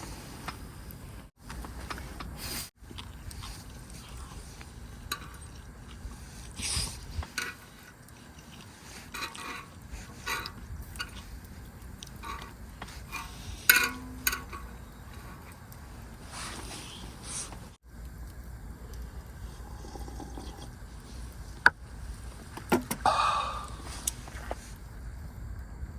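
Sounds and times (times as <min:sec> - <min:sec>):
low steady background: 0:00.0 - 0:25.9
metal utensils clinking on a pan: 0:12.2 - 0:14.8.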